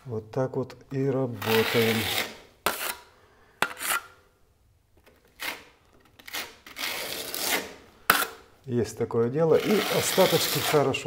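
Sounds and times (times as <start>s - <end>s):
spatula scraping plaster on wall: 1.3s - 4.2s, 5.3s - 8.4s, 9.6s - 11.0s.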